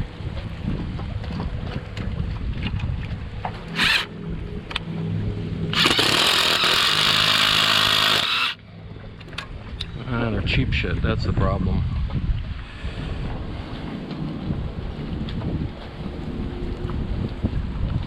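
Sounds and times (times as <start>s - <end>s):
low steady hum: 0.0s - 18.0s
power drill running: 3.7s - 4.1s, 5.7s - 8.6s.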